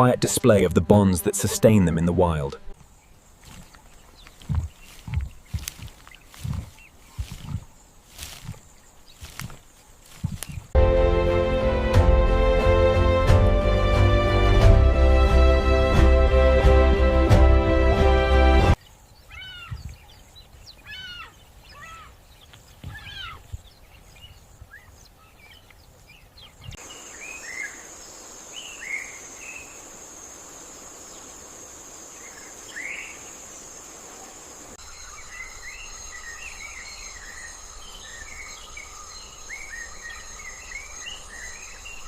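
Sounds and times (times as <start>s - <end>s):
high insect buzz: 0.0s - 10.8s, 26.8s - 42.0s
bird calls: 2.7s - 10.8s, 18.8s - 42.0s.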